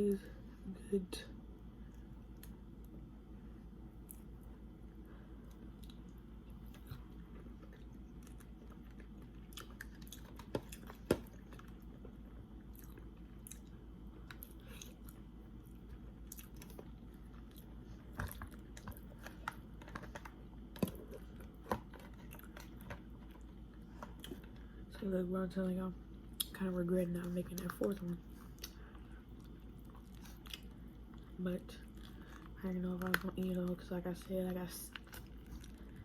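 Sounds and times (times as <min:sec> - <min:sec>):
person chewing food: 0:05.4 - 0:24.8, 0:27.5 - 0:32.6, 0:34.9 - 0:36.0.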